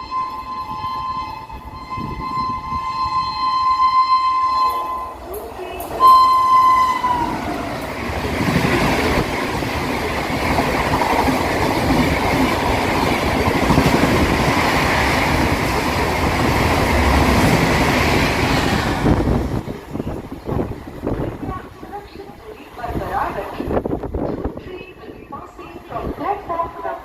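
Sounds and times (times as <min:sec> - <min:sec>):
train horn: 0:00.0 - 0:07.6
train wheel and rail rush: 0:00.0 - 0:27.0.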